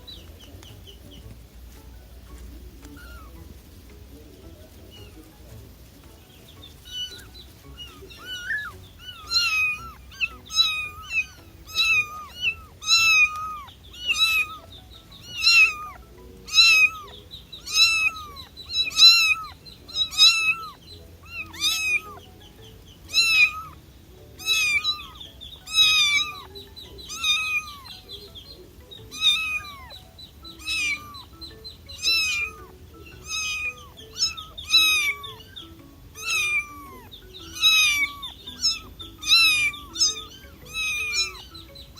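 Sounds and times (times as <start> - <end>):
kitten meowing: 2.8 - 3.4, 6.8 - 22.2, 23.1 - 23.8, 24.4 - 28.2, 29.0 - 41.7.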